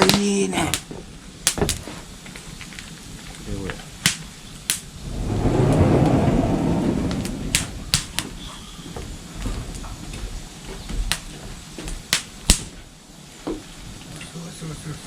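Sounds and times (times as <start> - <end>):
campfire crackling: 0.0 - 14.2
low rumbling whoosh: 4.9 - 9.5.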